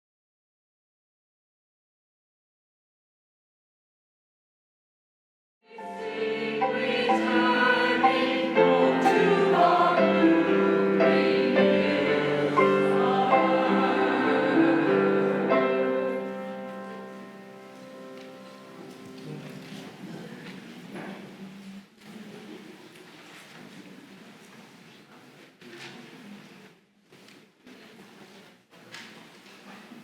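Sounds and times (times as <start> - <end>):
choir singing: 5.7 - 19.6.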